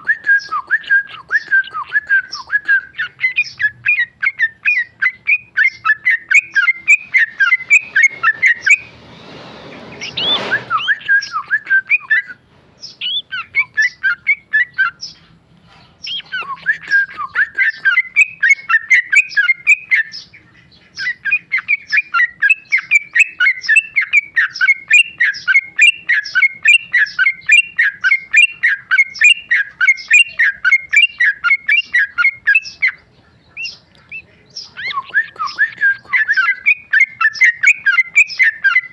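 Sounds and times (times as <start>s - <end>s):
bulbul singing fast chirps: 0.0s - 9.0s, 9.9s - 15.4s, 16.0s - 38.9s
brief rushing noise: 7.4s - 11.2s.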